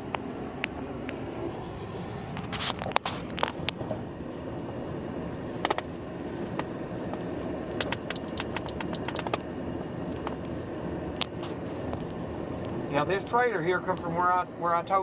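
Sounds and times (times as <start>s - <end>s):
vehicle rumbling over rough road: 0.0s - 14.4s
sharp ticks and clicks: 7.8s - 9.4s.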